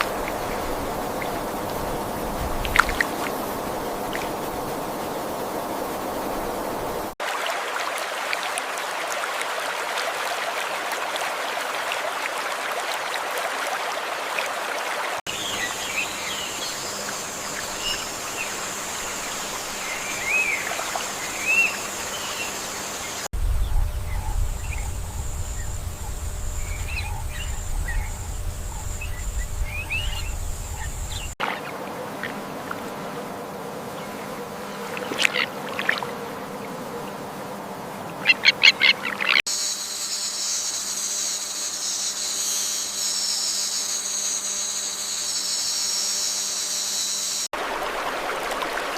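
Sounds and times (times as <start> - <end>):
high-pitched insect buzz: 15.3 - 31.4, 39.5 - 47.5
low rumble: 23.4 - 31.4.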